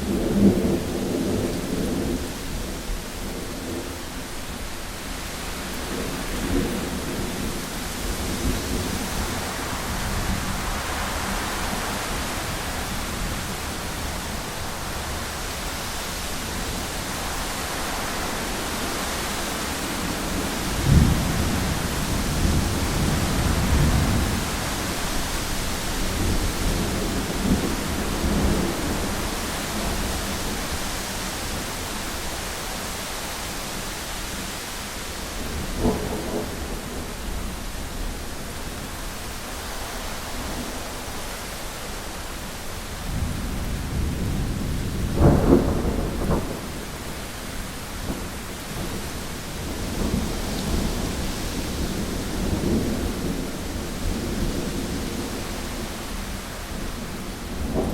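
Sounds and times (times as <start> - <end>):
heavy rain on a window: 0.0 - 57.9
thunder rumbling: 5.7 - 32.3, 43.0 - 57.9
thunder clap: 43.1 - 47.1.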